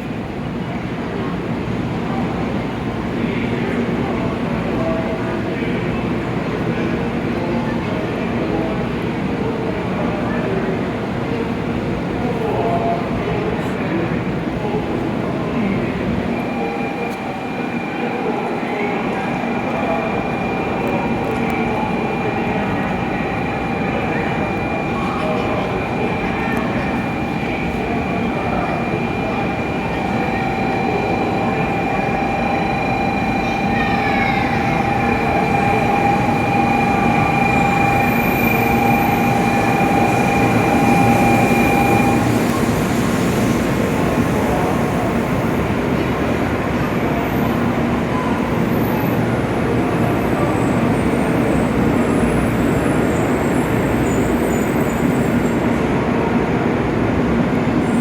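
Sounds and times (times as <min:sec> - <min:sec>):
rumble of train wheels: 0:00.0 - 0:58.0
train slowing to a stop: 0:00.0 - 0:58.0
short falling whines: 0:16.3 - 0:43.0
high whining tones: 0:16.3 - 0:43.8.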